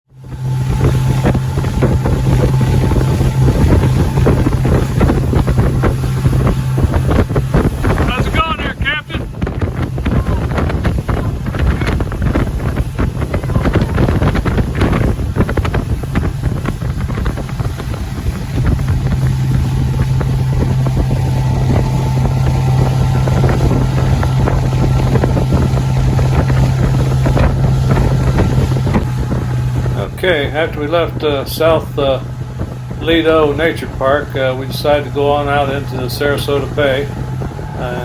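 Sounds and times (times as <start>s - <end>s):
motorboat engine: 0.0s - 38.0s
wind buffeting microphone: 0.1s - 38.0s.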